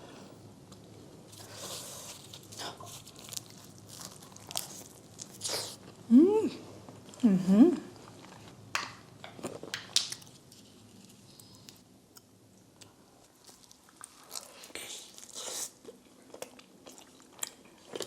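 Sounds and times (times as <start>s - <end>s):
crunchy pizza bites: 1.3s - 6.0s, 8.2s - 11.8s.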